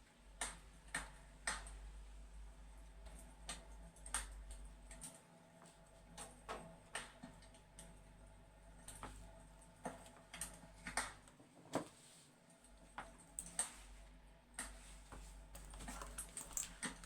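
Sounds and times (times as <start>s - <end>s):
fireplace crackling: 15.0s - 17.0s.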